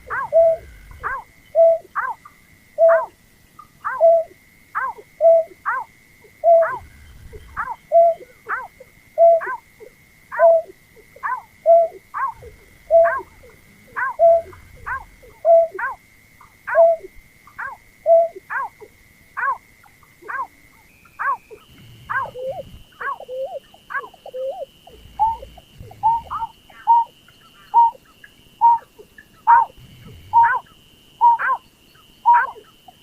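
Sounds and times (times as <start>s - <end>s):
bird whistled calls: 0.0s - 1.9s, 6.4s - 8.3s, 11.3s - 15.9s, 20.3s - 29.7s, 30.3s - 31.6s.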